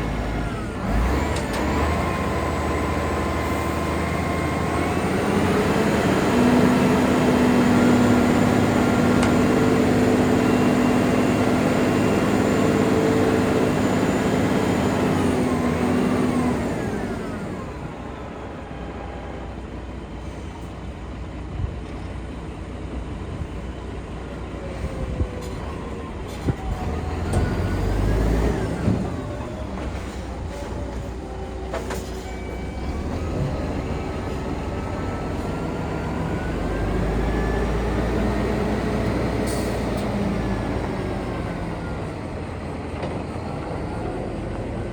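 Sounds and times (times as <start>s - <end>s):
diesel truck engine revving: 0.0s - 18.9s, 26.7s - 31.1s, 32.6s - 44.9s.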